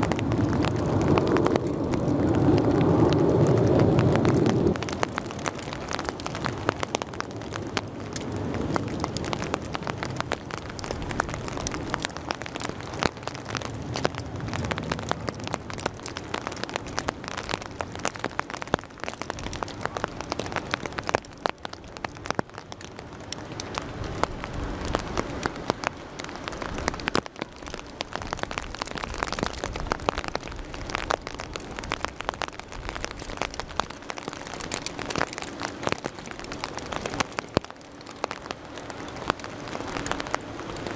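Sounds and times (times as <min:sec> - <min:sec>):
low rumble: 0:00.0 - 0:18.6
raindrops ticking on a surface: 0:00.0 - 0:40.9.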